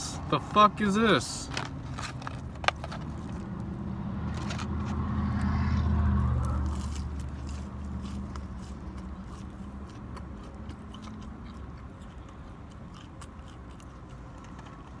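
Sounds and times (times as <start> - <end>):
man chewing food: 6.4 - 15.0.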